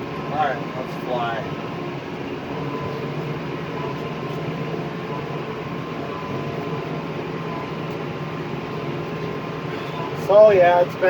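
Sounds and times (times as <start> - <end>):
faint steady whine: 0.0 - 11.0
vehicle engine droning: 0.0 - 11.0.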